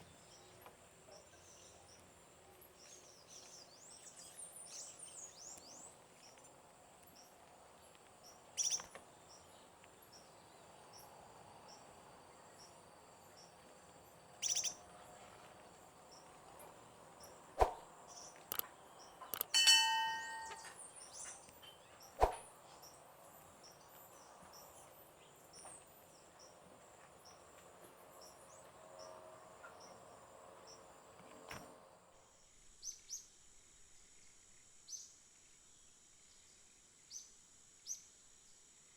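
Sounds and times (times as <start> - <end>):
loud bird calls: 18.1 - 20.7
sharp clicks: 19.3 - 19.6.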